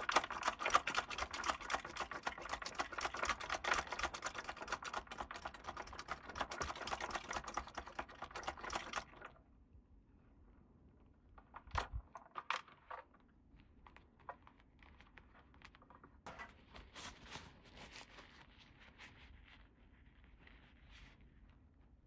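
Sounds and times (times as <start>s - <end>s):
plastic toy pieces clicking: 0.0s - 9.1s.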